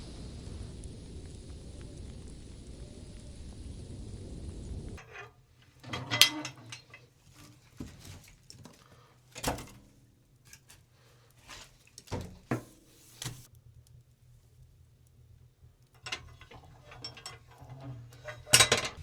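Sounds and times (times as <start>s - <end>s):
objects knocking and clattering: 5.0s - 10.8s, 11.4s - 13.5s, 16.0s - 19.0s.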